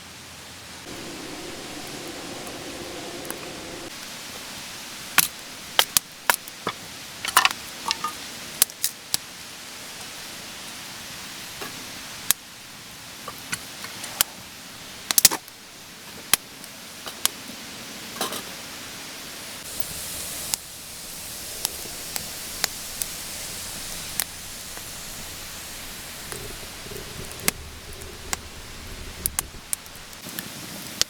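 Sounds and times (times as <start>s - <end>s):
campfire crackling: 0.8s - 6.5s, 19.6s - 31.0s.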